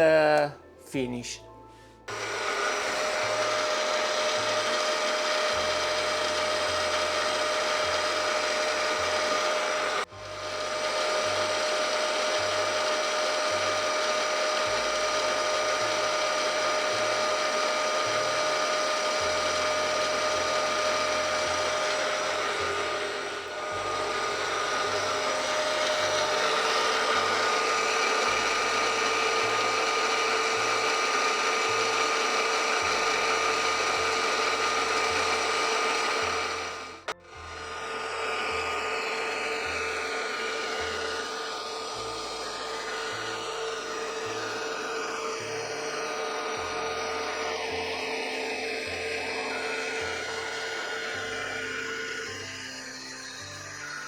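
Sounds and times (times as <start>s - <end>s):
milling machine gear whine: 2.1s - 54.0s.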